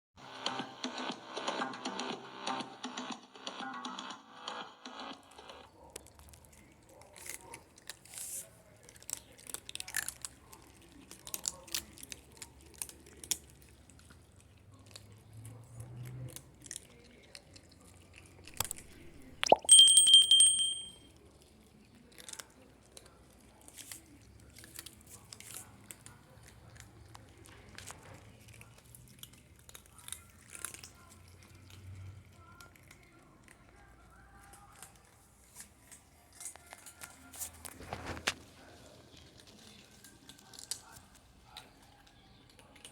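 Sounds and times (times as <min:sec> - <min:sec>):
cats crunching dry kibble: 0:05.8 - 0:18.5, 0:21.3 - 0:42.9.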